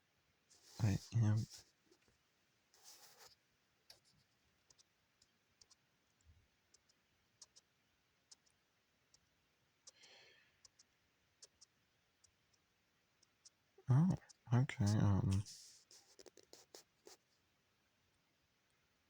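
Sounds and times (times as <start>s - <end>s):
soft rustle: 0.4s - 7.7s, 15.3s - 17.5s
faint irregular clicks: 1.5s - 17.4s.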